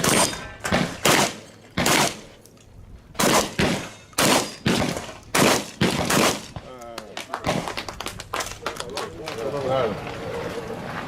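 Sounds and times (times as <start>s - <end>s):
shotgun shots: 0.0s - 2.4s, 3.2s - 6.7s.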